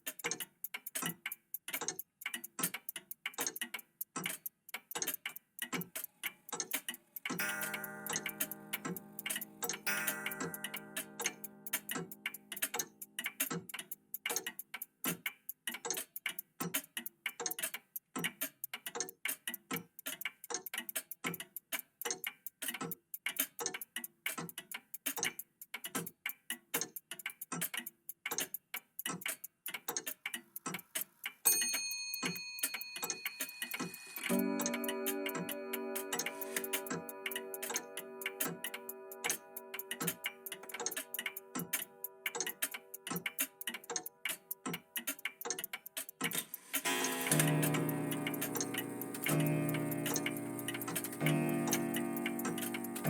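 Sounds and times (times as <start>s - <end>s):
mechanical clocks ticking: 0.0s - 53.0s
clock chime ringing: 7.4s - 11.6s, 31.6s - 39.7s, 46.8s - 53.0s
low musical tone: 34.1s - 42.1s, 46.9s - 53.0s.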